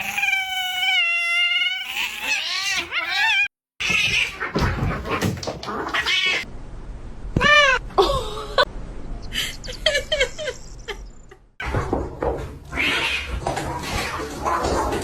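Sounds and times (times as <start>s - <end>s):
cats yowling aggressively: 0.0s - 6.5s, 12.7s - 14.7s.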